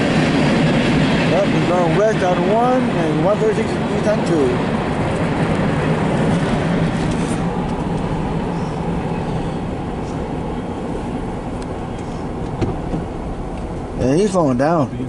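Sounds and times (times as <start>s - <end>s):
diesel engine hum: 0.0s - 15.0s
freight train wheels on rail: 0.0s - 15.0s.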